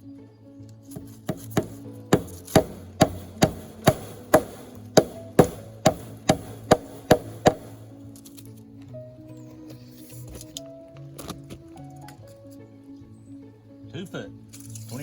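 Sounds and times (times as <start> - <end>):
background music: 0.0 - 15.0
sharp knocks: 1.0 - 8.0.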